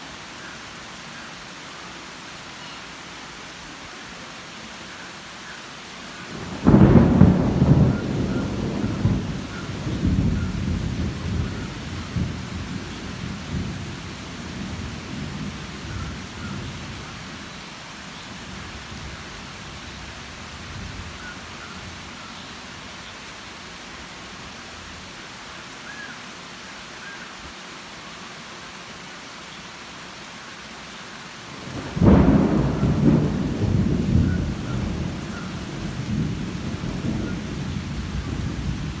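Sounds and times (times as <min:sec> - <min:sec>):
steady rain: 0:00.0 - 0:39.0
thunder rumbling: 0:06.3 - 0:17.5, 0:31.5 - 0:39.0.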